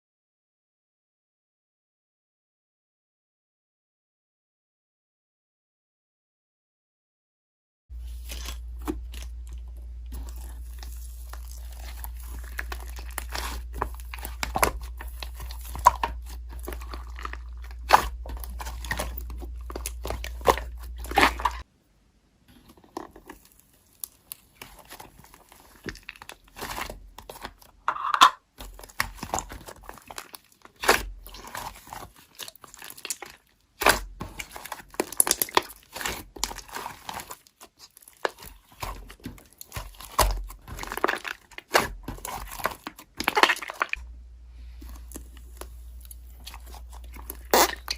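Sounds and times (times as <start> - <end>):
slime squished by hand: 8.0 - 21.6, 22.6 - 27.8, 28.6 - 44.0, 44.8 - 47.9
low hum: 44.0 - 47.9.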